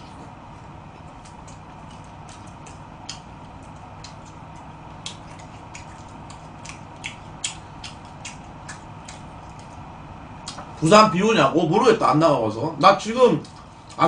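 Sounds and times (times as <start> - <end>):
faint steady hum: 0.0 - 14.0
mouth clicks of person chewing: 1.2 - 9.8.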